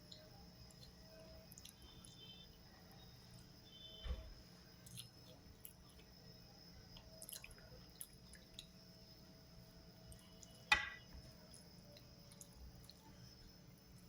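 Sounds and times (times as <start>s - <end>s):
wet eating sounds: 6.9s - 9.0s.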